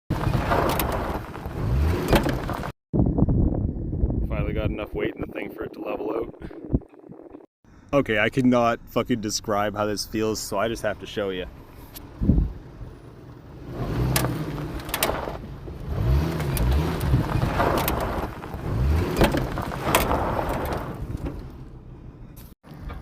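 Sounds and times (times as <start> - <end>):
truck engine: 0.1 - 2.8, 10.8 - 23.0
road and tyre noise: 0.1 - 4.1, 6.9 - 23.0
knocks and rattles: 14.1 - 21.8.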